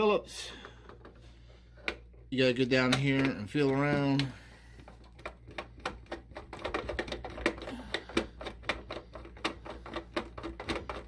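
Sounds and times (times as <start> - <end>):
screwdriver clicking and tapping: 2.9 - 11.0.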